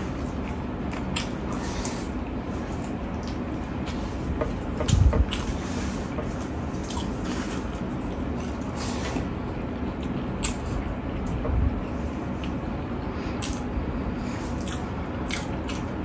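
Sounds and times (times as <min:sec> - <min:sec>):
wet squishy chewing: 0:00.0 - 0:03.6, 0:14.6 - 0:16.0.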